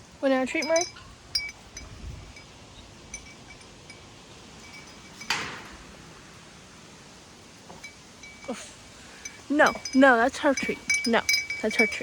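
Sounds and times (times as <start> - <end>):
low background hiss: 0.0 - 12.0
wind chimes tinkling: 0.2 - 5.5, 7.8 - 12.0.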